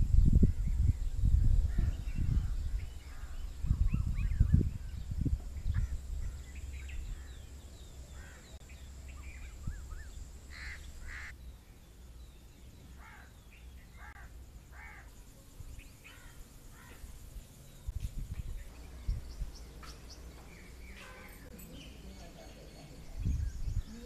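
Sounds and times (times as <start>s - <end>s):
small birds chirping: 0.1s - 24.0s
coarse bird calls: 5.6s - 11.4s.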